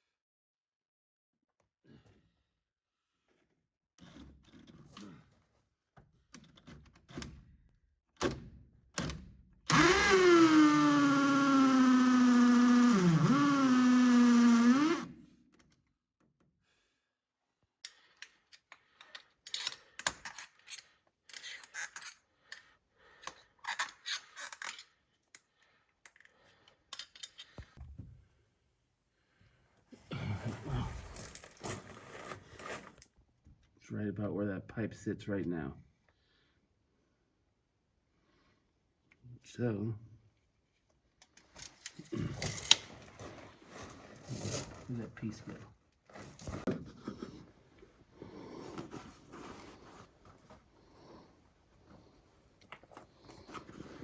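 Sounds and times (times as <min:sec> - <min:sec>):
power drill whining: 0:09.7 - 0:15.1
parts clicking and rustling: 0:17.8 - 0:27.8.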